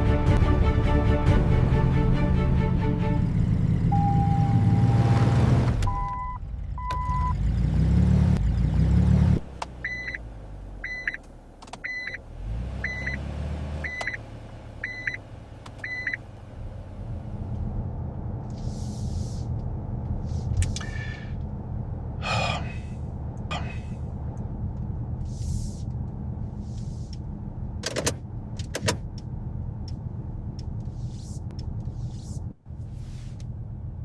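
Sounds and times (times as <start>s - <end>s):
vehicle engine revving: 1.4s - 10.8s, 12.2s - 27.8s
short electronic beeps: 3.9s - 5.0s, 9.8s - 10.2s, 10.8s - 11.2s, 11.8s - 12.2s, 12.8s - 13.2s, 14.8s - 15.2s, 15.8s - 16.2s.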